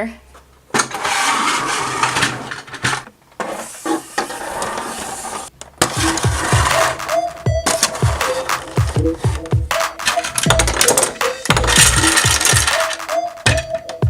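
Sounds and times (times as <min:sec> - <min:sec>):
plastic toy pieces rattling and scraping: 0:00.8 - 0:07.0, 0:07.6 - 0:14.0
electronic music with deep bass: 0:05.9 - 0:14.0.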